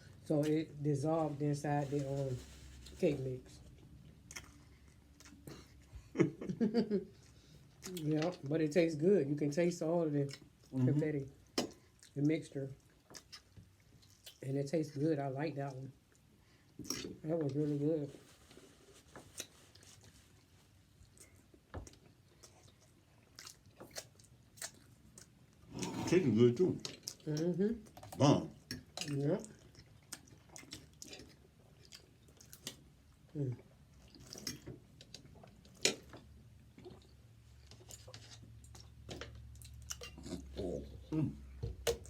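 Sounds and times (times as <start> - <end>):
person eating: 19.2 - 32.8, 33.5 - 42.0.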